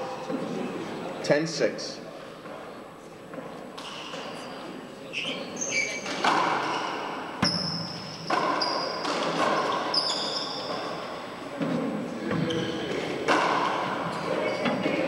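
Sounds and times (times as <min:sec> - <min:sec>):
sneakers squeaking on court: 0:03.4 - 0:11.2, 0:12.3 - 0:15.0
handball smacking off walls: 0:06.1 - 0:06.8, 0:13.2 - 0:14.1.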